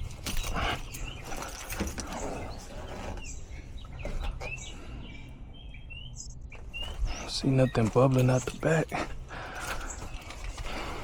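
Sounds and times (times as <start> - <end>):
songbirds chirping: 0.0 - 11.0
faint clicking and handling noise: 7.6 - 11.0.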